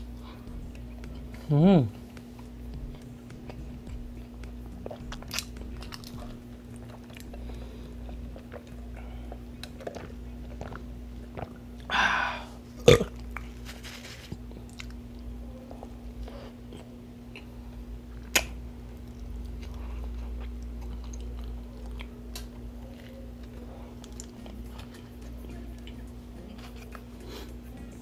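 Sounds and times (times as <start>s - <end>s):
person chewing and biting food: 0.0s - 12.2s, 12.8s - 27.6s
steady low hum: 0.0s - 28.0s.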